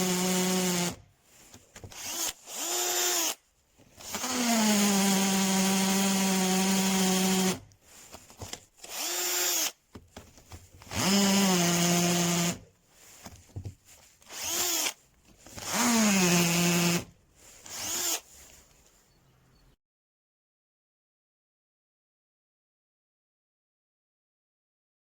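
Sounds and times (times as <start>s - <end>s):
cordless drill motor whining: 0.0s - 1.0s, 1.8s - 7.6s, 8.2s - 9.8s, 10.8s - 12.6s, 14.2s - 18.3s.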